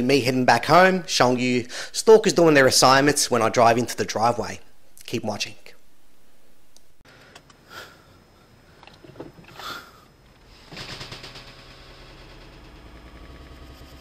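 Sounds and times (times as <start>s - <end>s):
car engine running: 10.3s - 14.0s
rapid rattle: 10.3s - 14.0s.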